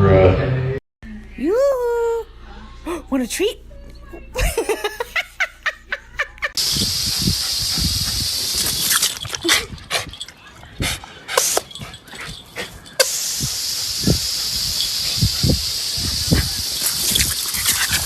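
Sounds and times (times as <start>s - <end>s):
dog's small noises: 6.5s - 18.0s
steady hiss: 6.6s - 9.2s, 13.0s - 18.0s.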